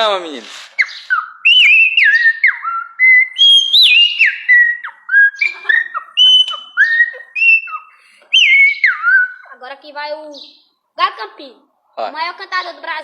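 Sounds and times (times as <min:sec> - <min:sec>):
person whistling birdsong: 0:00.8 - 0:09.4.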